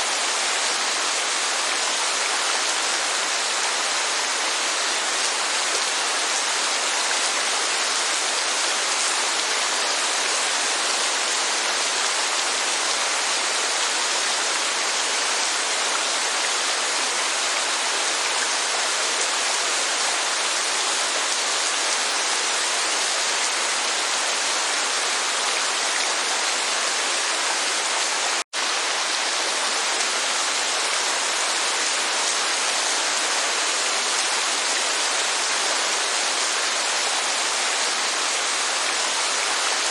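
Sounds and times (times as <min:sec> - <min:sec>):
rain and falling water hissing: 0:00.0 - 0:39.9.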